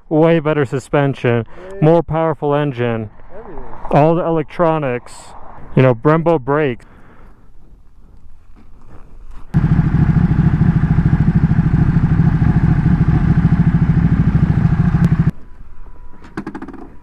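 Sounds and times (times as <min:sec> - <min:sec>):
motorcycle engine running: 0:09.6 - 0:15.3.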